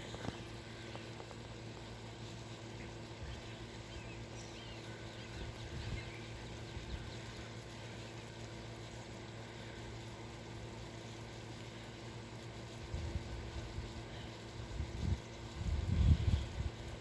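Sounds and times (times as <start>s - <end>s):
faint bird chirps: 2.7s - 8.4s.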